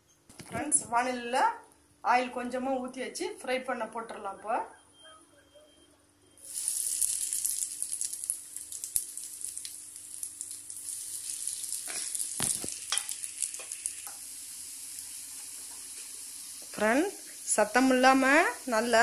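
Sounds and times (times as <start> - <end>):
potato nuggets sizzling in oil: 6.4 - 19.0.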